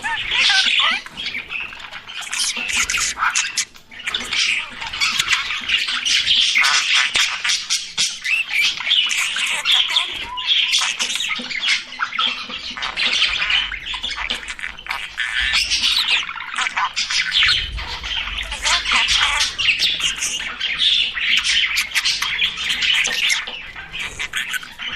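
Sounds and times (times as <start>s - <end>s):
budgerigars chirping and squawking: 0.0s - 24.9s.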